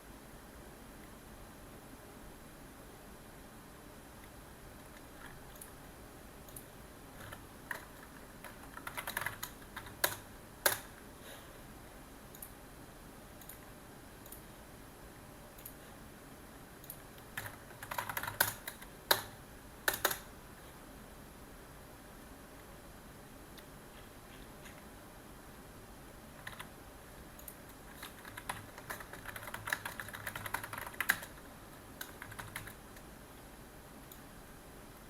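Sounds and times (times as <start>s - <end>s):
typing on a keyboard: 6.5s - 10.9s, 16.8s - 19.3s, 19.9s - 20.3s, 26.4s - 26.7s, 27.4s - 33.0s.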